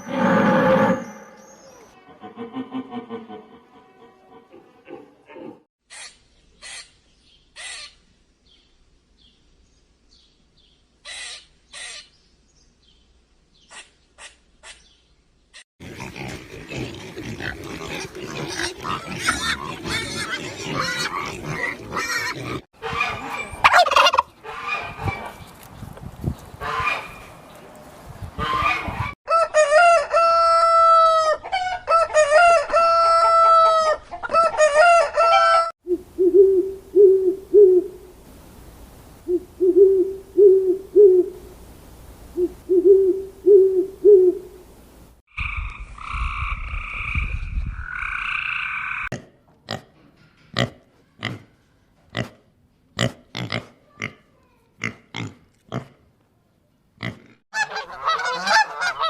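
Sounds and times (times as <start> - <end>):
domestic fowl calling: 22.8 - 25.4, 26.6 - 27.3, 28.4 - 37.9, 57.5 - 59.0.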